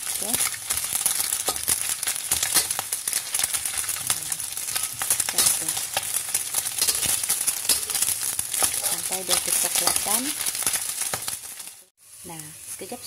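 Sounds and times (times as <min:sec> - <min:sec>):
metal spatula scraping a wok: 0:00.0 - 0:11.8
food sizzling in oil: 0:00.0 - 0:13.0.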